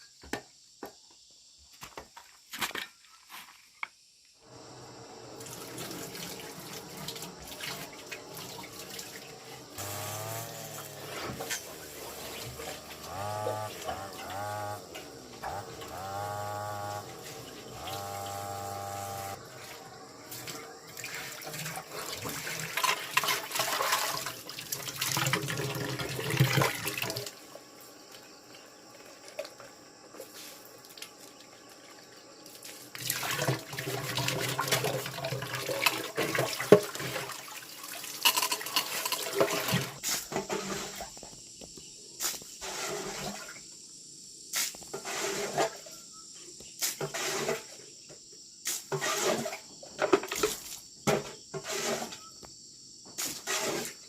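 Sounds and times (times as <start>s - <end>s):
water pouring and splashing: 5.3s - 13.1s, 19.3s - 28.3s, 28.9s - 41.3s, 42.2s - 43.6s, 49.0s - 50.8s.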